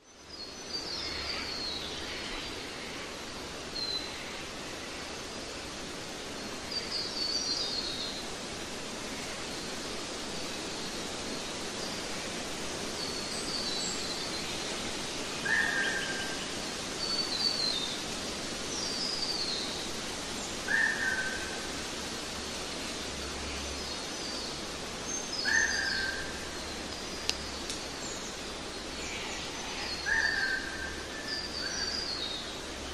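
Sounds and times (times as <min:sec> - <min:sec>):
steady hiss: 0:00.0 - 0:32.9
lower bird calls: 0:20.6 - 0:21.7, 0:25.3 - 0:28.3.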